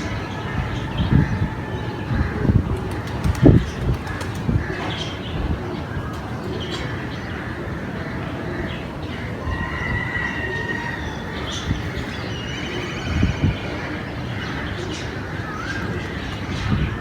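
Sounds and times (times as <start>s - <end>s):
birds calling: 0.0s - 17.0s.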